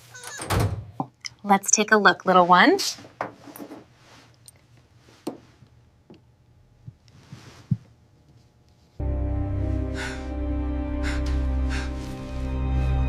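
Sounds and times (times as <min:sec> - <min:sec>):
music with low drone: 0:09.0 - 0:13.0.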